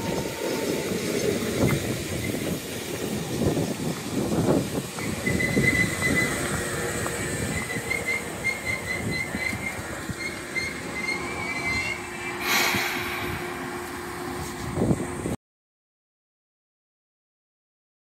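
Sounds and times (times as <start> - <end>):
train wheels rumbling on rail: 0.0 - 15.4
high-pitched wheel squeal: 5.0 - 14.6
steady hum: 12.1 - 15.3
short loud hiss: 12.4 - 14.7.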